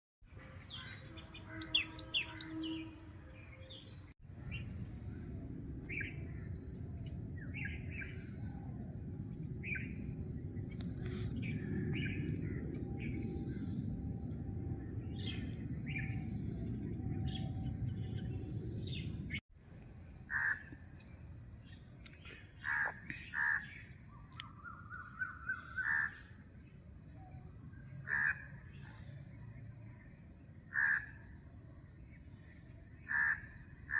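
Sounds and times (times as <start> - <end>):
high insect drone: 0.3 - 33.9
wind on microphone: 4.4 - 19.4.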